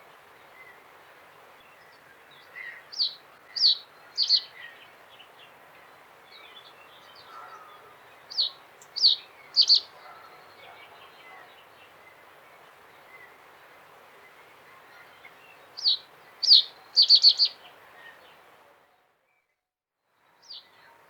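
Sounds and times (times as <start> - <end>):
bird singing: 8.3 - 9.9, 15.8 - 17.6.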